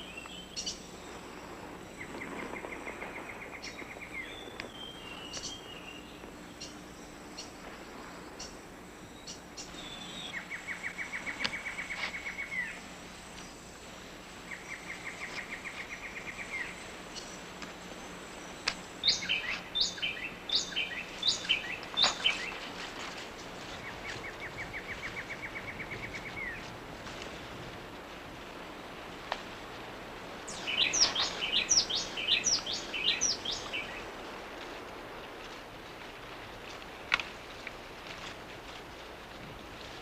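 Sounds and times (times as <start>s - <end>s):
forest background hiss: 0.0s - 40.0s
sharp falling bird calls: 18.6s - 22.8s, 30.5s - 34.2s
bird trilling: 30.5s - 34.0s.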